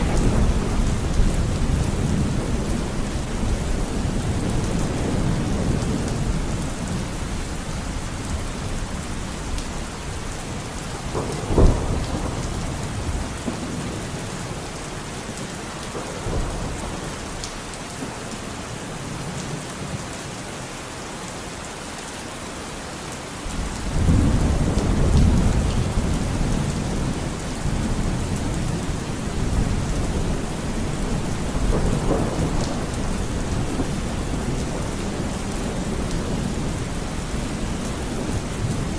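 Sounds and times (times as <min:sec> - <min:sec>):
thunder crack: 0:00.0 - 0:06.4, 0:10.9 - 0:13.8, 0:29.4 - 0:35.0
low thunder rumble: 0:00.0 - 0:07.6, 0:10.1 - 0:14.6, 0:23.5 - 0:38.9
steady rain falling: 0:00.0 - 0:38.9.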